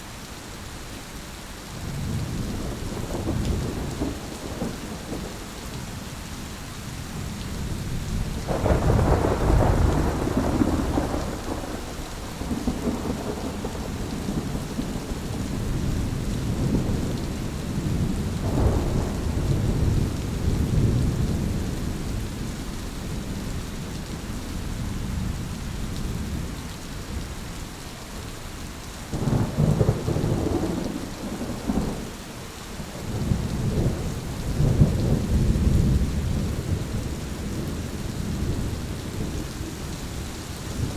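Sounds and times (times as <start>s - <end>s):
steady rain: 0.0s - 40.9s
rolling thunder: 1.9s - 5.9s, 7.6s - 23.6s, 29.2s - 32.2s, 32.8s - 39.4s, 40.7s - 40.9s.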